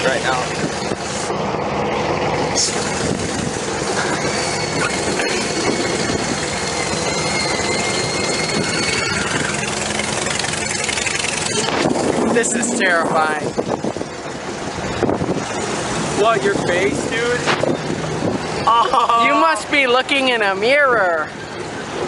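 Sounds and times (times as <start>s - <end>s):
small train rumbling on track: 0.0s - 22.0s
high-pitched squeal: 2.4s - 13.4s.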